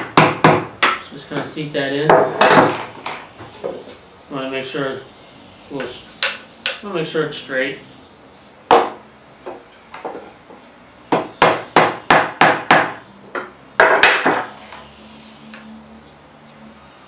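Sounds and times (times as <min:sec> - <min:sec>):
hammer striking wood block: 0:00.0 - 0:01.0, 0:06.2 - 0:06.8, 0:08.7 - 0:09.0, 0:11.1 - 0:14.5.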